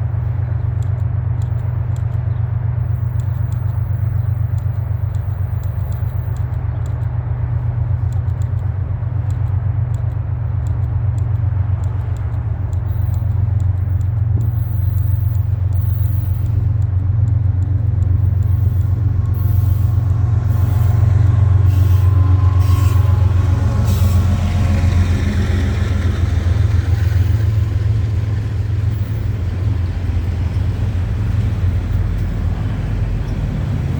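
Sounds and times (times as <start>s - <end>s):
diesel locomotives rumbling: 0.0s - 33.9s
train hiss: 18.2s - 33.9s.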